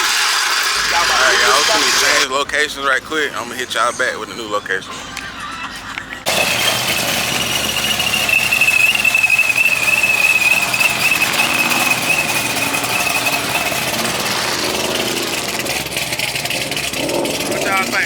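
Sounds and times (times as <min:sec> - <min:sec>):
car engine revving hard: 0:00.0 - 0:02.3, 0:06.3 - 0:18.0
tyre squeal: 0:00.0 - 0:02.3, 0:06.3 - 0:18.0.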